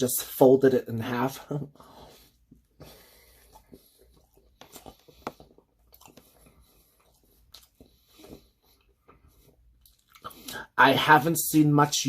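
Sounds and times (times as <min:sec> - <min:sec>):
person chewing food: 0:01.7 - 0:10.6.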